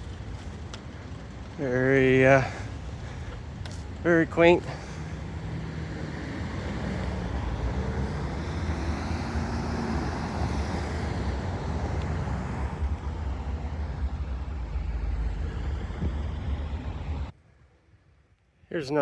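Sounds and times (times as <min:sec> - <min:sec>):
vehicle engine hum rising: 0:00.0 - 0:17.4
road traffic: 0:00.0 - 0:17.9
wind rumble on microphone: 0:06.2 - 0:17.3.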